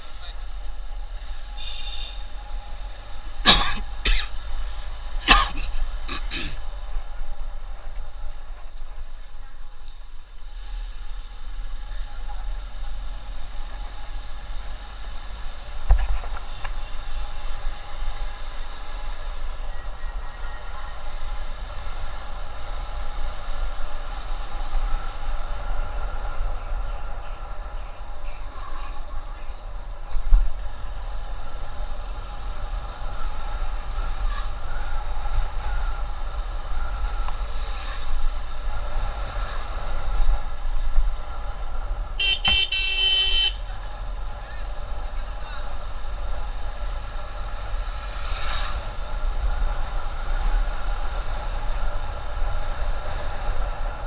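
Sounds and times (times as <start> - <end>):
motorcycle road and wind noise: 0.0 - 54.0
vehicle horn honking: 1.6 - 2.3, 42.2 - 43.6.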